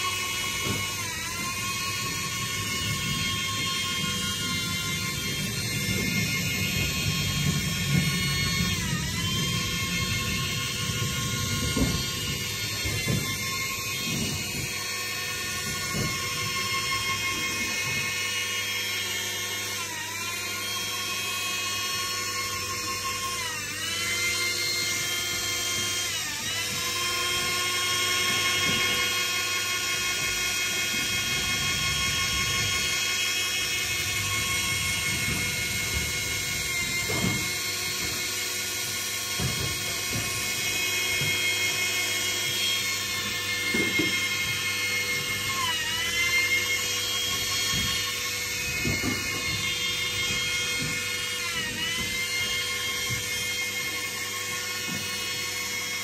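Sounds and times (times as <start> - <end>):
high-pitched motor whine: 0.0 - 56.0.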